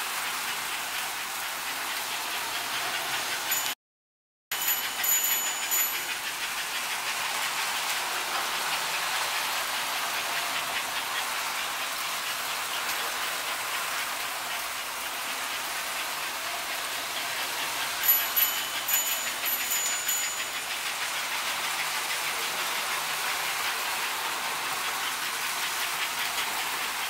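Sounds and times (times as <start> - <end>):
model train running on track: 0.0 - 3.8, 4.5 - 27.0
high-pitched squeaks: 4.5 - 6.6, 18.0 - 20.9.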